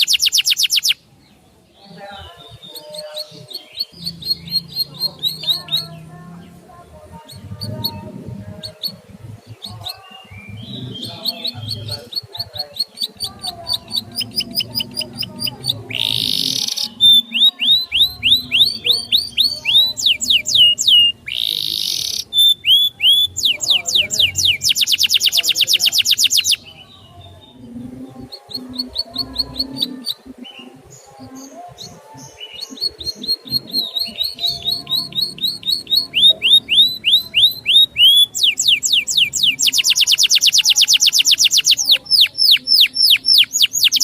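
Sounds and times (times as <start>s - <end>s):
rapid bird trill: 0.0s - 1.0s, 2.8s - 6.0s, 7.2s - 26.7s, 32.3s - 44.0s
songbird singing whistled notes: 0.0s - 6.5s, 7.2s - 44.0s
harsh buzzy bird calls: 7.2s - 26.6s.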